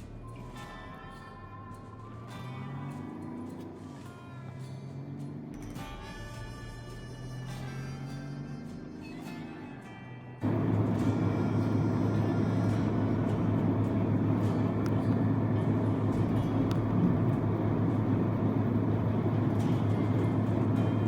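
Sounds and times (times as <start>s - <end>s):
diesel truck engine rumbling: 10.4s - 21.0s.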